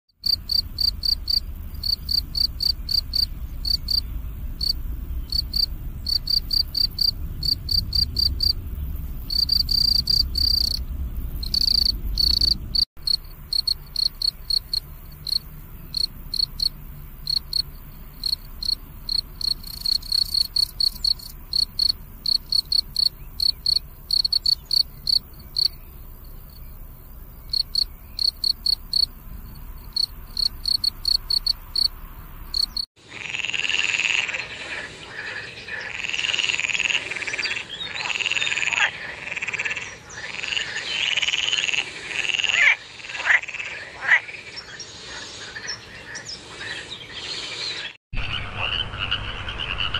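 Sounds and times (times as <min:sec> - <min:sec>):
low background rumble: 0:00.2 - 0:32.8
cricket chirping: 0:00.2 - 0:32.9.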